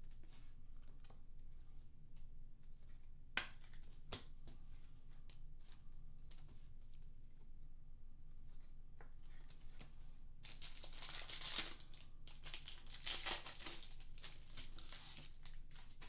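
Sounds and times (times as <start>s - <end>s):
wrapper tearing and crinkling: 10.4s - 16.0s.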